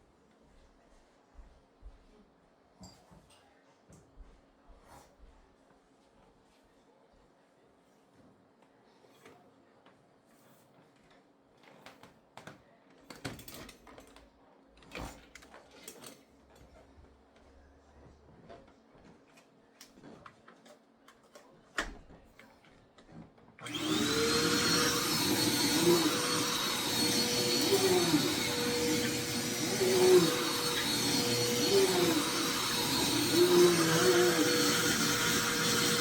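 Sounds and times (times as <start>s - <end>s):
vacuum cleaner running: 23.6s - 36.0s.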